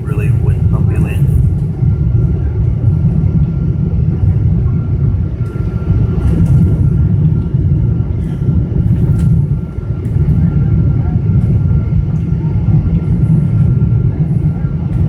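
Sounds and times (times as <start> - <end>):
airflow and engines rumbling: 0.0 - 15.0.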